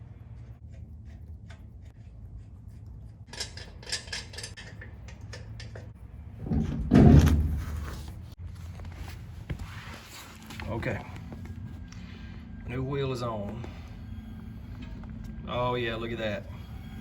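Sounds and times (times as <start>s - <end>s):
metal clinks and rattles: 3.2s - 6.0s
heavy thud with scrape: 6.4s - 8.2s.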